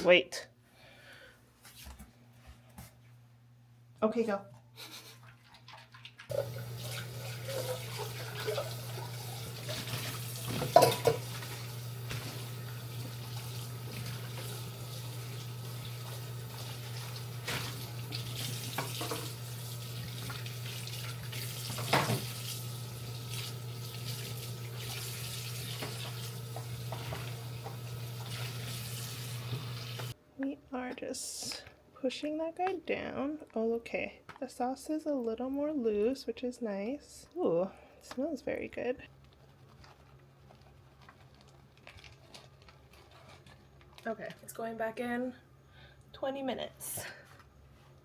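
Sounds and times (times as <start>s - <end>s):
faucet running into sink: 6.0s - 30.2s
dishes knocking: 10.6s - 11.3s.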